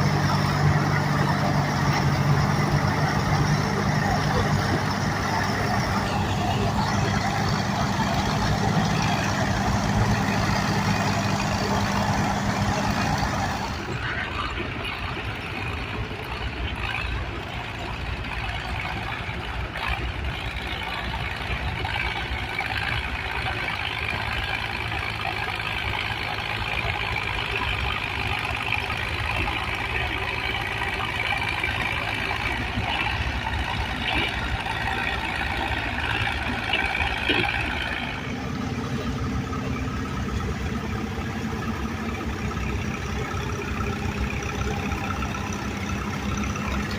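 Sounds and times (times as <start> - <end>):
engine running: 0.0 - 46.9.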